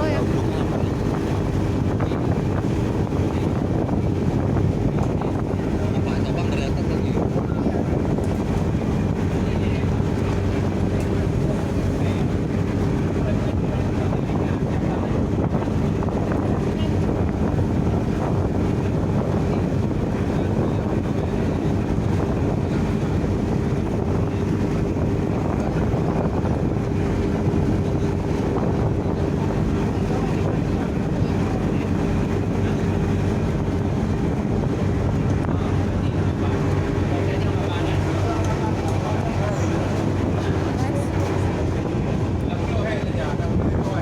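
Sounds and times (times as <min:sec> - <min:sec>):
ship engine humming: 0:00.0 - 0:44.0
wind buffeting microphone: 0:00.0 - 0:44.0.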